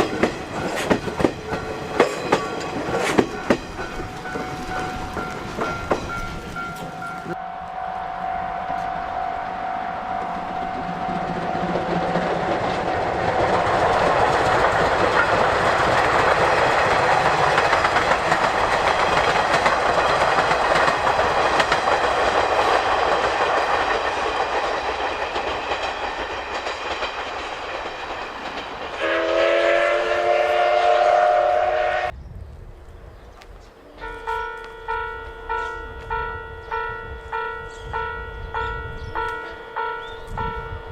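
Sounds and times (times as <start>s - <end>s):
steam train rushing past: 0.0s - 32.2s
steam whistle: 7.2s - 12.8s, 29.0s - 32.1s.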